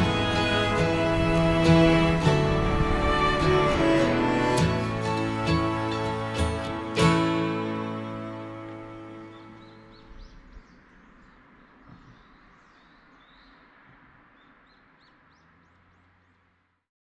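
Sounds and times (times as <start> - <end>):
gentle background music: 0.0 - 13.4
outdoor hiss: 0.0 - 16.7
birds chirping: 0.0 - 16.8.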